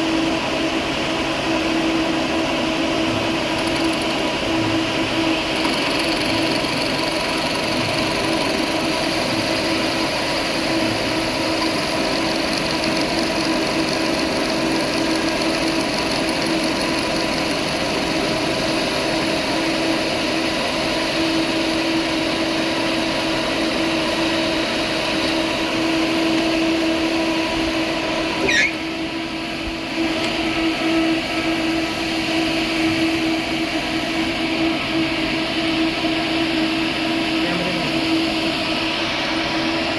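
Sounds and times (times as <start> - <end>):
workshop machinery humming: 0.0 - 39.9
brief squeal: 28.4 - 29.0.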